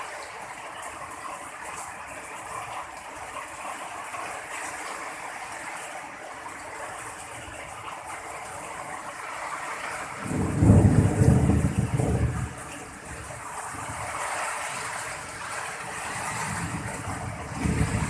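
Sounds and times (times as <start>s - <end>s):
heavy rain pouring: 0.0s - 18.0s
low thunder rumble: 10.1s - 14.3s, 14.9s - 18.0s.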